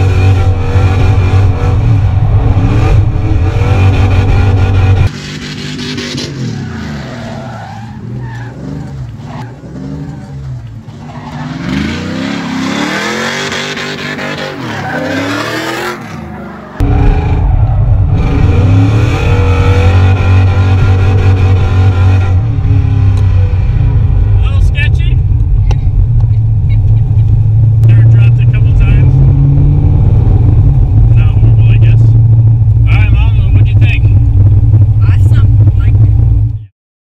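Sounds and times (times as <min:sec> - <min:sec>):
tires skidding: 0:00.0 - 0:22.8
car engine revving: 0:00.0 - 0:36.7.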